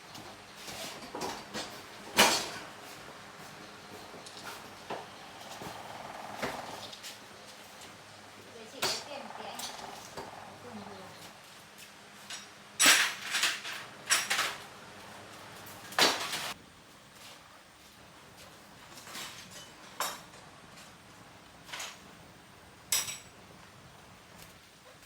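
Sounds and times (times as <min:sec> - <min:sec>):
metal tools clinking and knocking: 0:22.9 - 0:23.3.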